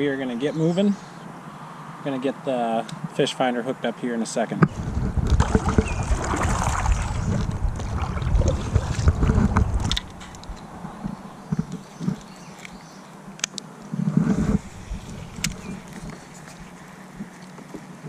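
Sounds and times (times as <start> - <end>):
wind rumbling on microphone: 4.6 - 12.9, 13.8 - 18.0.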